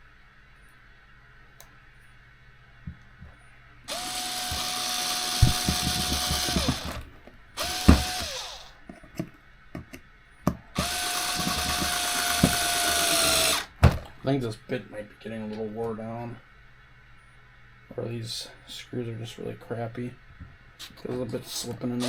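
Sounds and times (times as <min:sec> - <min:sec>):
electric screwdriver whining: 0:03.9 - 0:07.0, 0:07.6 - 0:08.7, 0:10.8 - 0:13.7
sharp knocks and clicks: 0:05.3 - 0:07.0.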